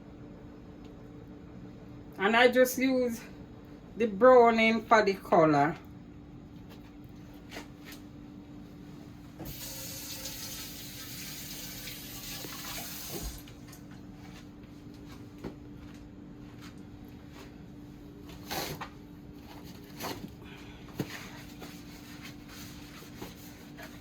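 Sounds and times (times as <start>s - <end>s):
kitchen tap running: 9.4s - 13.7s.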